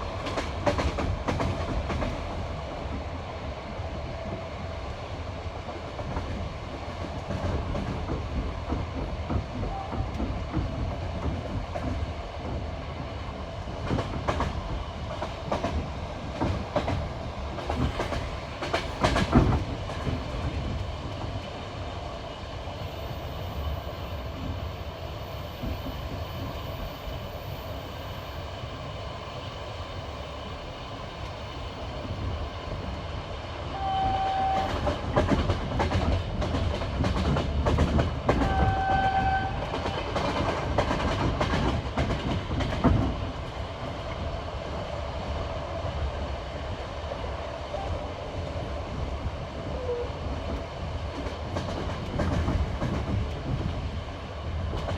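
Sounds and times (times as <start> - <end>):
train horn blasts: 33.7 - 35.0, 38.4 - 39.8
train wheels clattering over rail joints: 51.1 - 54.0.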